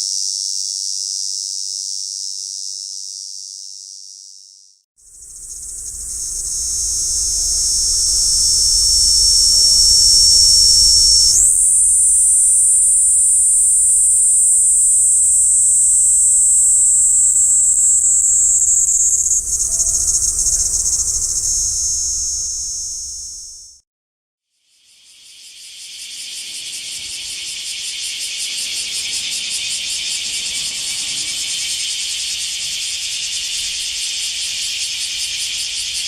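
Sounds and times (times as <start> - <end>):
cicada buzzing: 0.0 - 23.8.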